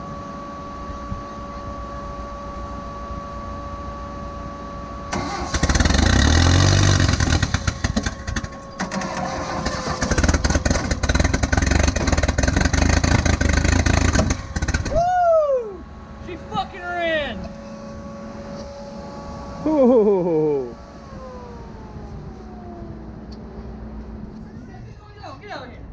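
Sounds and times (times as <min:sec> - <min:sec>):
engine cranking and running unevenly: 0:05.1 - 0:24.5.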